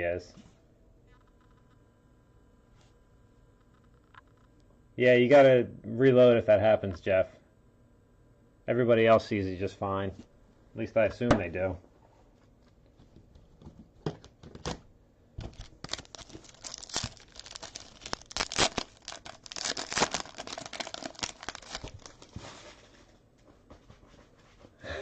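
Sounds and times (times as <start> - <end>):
wrapper tearing and crinkling: 15.4 - 22.4.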